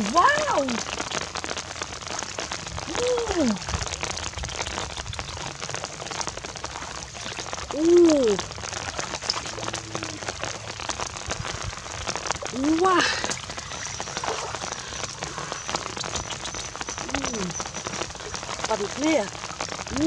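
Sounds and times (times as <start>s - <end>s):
woman exclaiming: 0.0s - 0.8s, 2.9s - 3.6s, 7.8s - 8.4s, 12.5s - 13.2s
rain pattering on water and grass: 0.0s - 20.0s.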